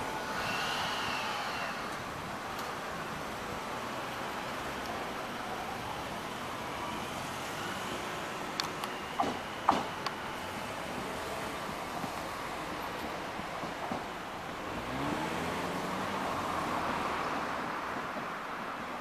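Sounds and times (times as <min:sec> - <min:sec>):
electric train pulling away: 0:00.0 - 0:04.7
steady outdoor rumble: 0:00.0 - 0:19.0.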